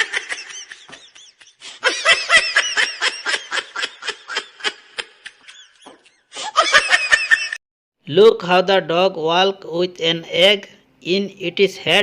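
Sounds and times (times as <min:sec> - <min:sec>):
high-pitched laughter: 0:00.0 - 0:07.6.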